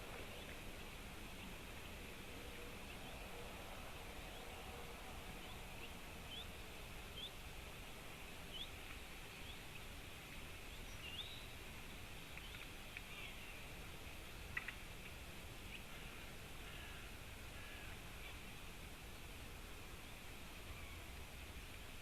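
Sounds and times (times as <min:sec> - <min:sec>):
faint steady hiss: 0:00.0 - 0:22.0
small birds chirping: 0:04.2 - 0:07.4, 0:08.1 - 0:13.7.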